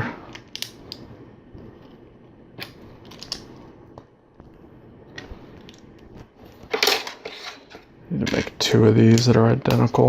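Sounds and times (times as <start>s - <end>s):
plastic bricks clicking: 0.3s - 1.0s, 3.0s - 3.5s.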